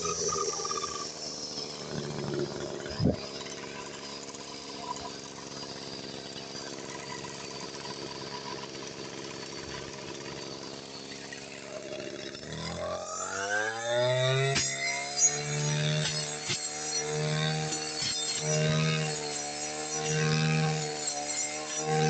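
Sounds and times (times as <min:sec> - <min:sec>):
brush cutter engine idling: 0:00.0 - 0:13.2.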